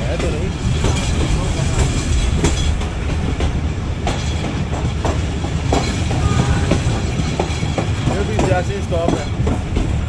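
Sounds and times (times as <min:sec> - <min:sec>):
train rumbling on track: 0:00.0 - 0:10.0
wheels clicking over rail joints: 0:00.0 - 0:10.0.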